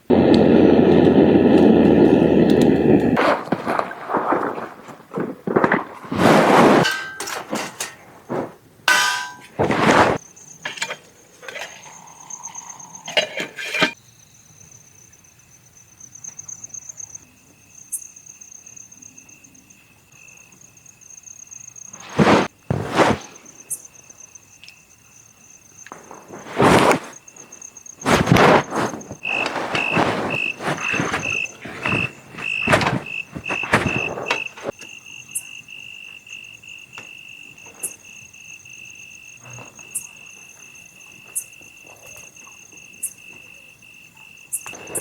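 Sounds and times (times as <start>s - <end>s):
high insect trill: 10.2s - 45.0s.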